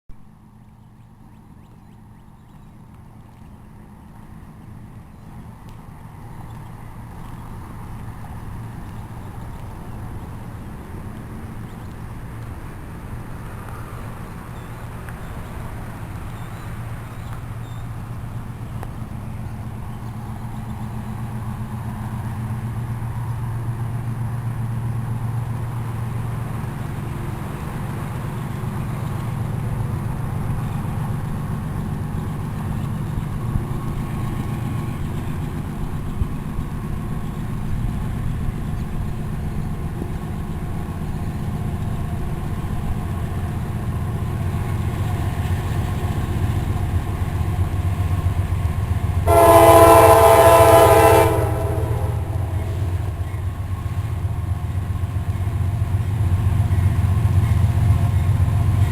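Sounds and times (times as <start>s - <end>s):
diesel locomotive engine drone: 0.1s - 58.9s
train air horn: 49.2s - 53.1s.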